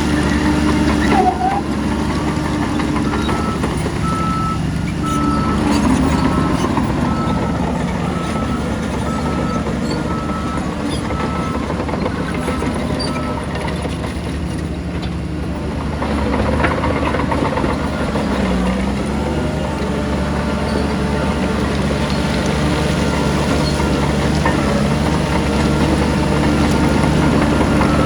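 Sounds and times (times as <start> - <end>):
heavy diesel machinery engine drone: 0.0 - 28.0
reversing alarm beeping: 3.0 - 11.8, 22.8 - 28.0.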